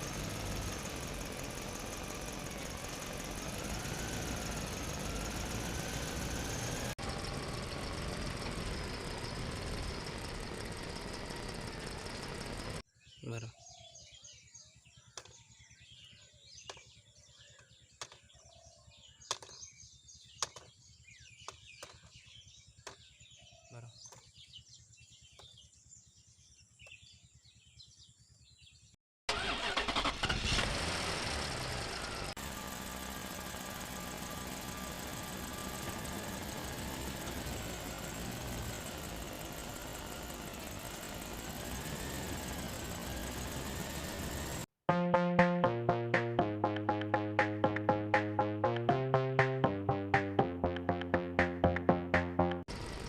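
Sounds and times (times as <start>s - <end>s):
small vehicle motor running: 0.0s - 12.8s, 29.3s - 44.7s, 45.9s - 53.0s
small birds chirping: 0.0s - 29.0s.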